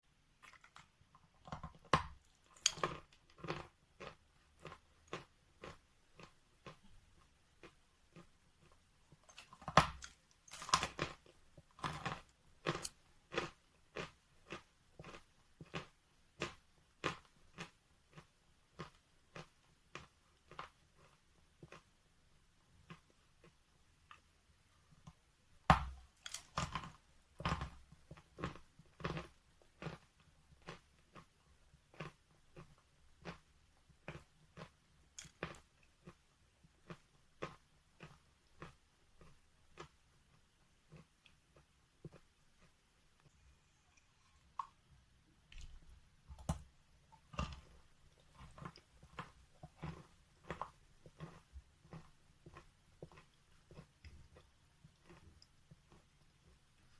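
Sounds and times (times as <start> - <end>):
person chewing chalk: 1.5 - 6.9, 7.6 - 21.9, 45.5 - 56.2.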